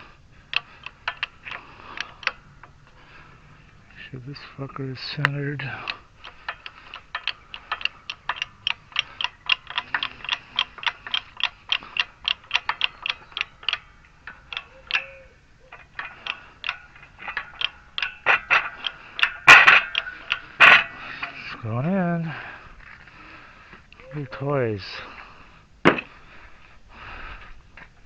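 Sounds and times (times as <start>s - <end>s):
ratchet clicking: 0.5s - 2.7s, 5.6s - 21.6s.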